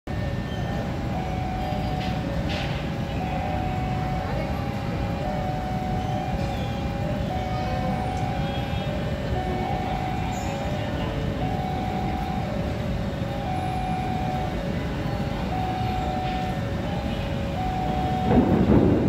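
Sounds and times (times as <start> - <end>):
train wheels rumbling on rail: 0.1 - 19.0
two-note alternating tone: 3.1 - 18.7.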